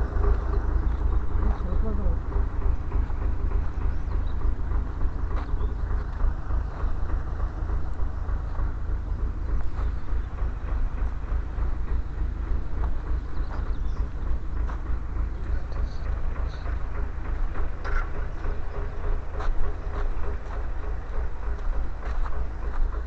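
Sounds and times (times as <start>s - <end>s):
motorcycle engine and road rumble: 0.0s - 23.0s
wind buffeting microphone: 0.0s - 23.0s.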